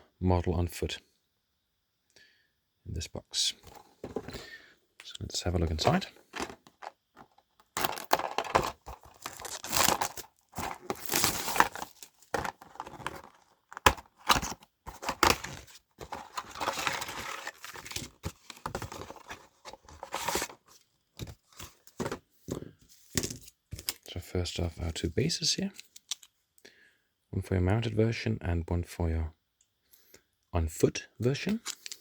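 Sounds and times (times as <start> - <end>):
cardboard tearing and crinkling: 5.8 - 20.7.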